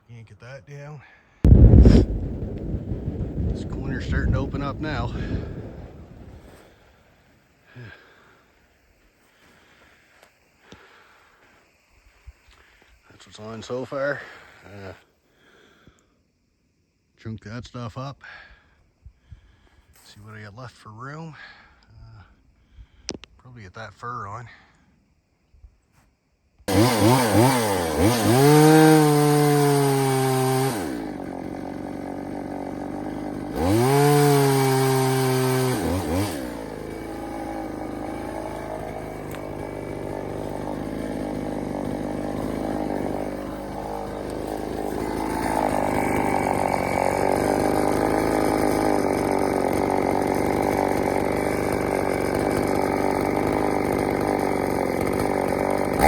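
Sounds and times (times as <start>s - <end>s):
chainsaw revving: 7.7s - 8.3s, 26.7s - 56.0s
chainsaw cutting wood: 26.7s - 56.0s.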